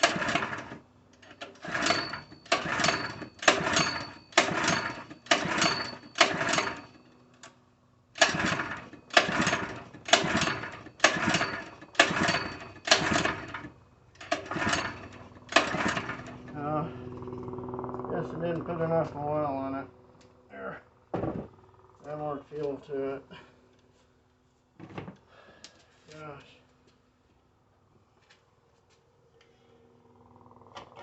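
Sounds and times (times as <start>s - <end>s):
recoil starter pulls cranking engine: 0.0s - 7.5s, 8.2s - 17.4s.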